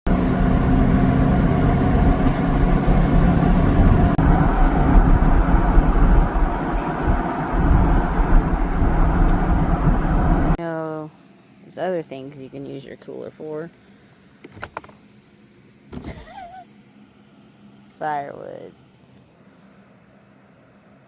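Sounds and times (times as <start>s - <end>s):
vehicle engine and road rumble: 0.0s - 10.6s.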